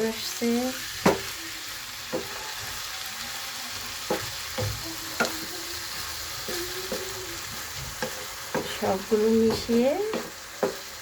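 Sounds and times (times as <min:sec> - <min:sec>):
vegetables sizzling in a pan: 0:00.0 - 0:11.0
spatula knocking against pan: 0:01.0 - 0:01.3, 0:02.1 - 0:02.8, 0:04.0 - 0:11.0.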